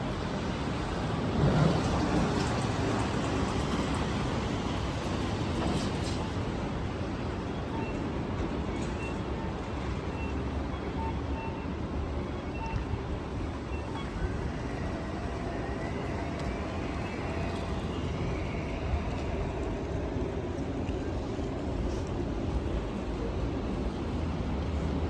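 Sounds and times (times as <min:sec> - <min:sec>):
passing traffic: 0:00.0 - 0:25.0
heavy rain: 0:00.8 - 0:05.6.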